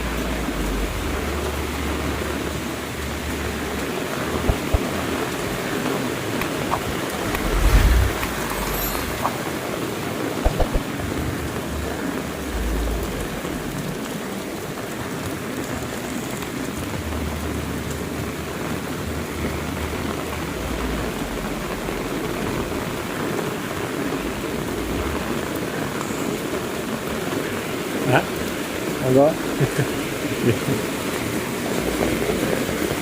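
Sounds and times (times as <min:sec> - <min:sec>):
heavy rain falling: 0:00.0 - 0:33.0
sharp knocks: 0:04.4 - 0:04.8
low rumble: 0:06.4 - 0:09.2.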